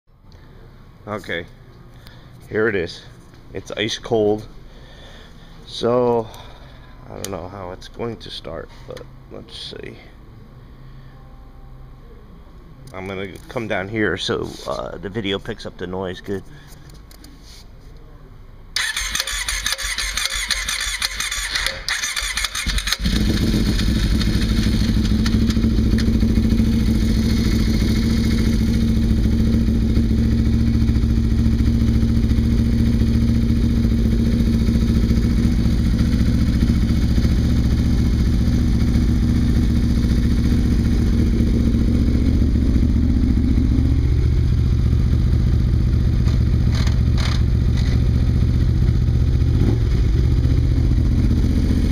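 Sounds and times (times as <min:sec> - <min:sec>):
starter motor cranking: 0:18.8 - 0:26.1
engine idling: 0:18.8 - 0:51.9.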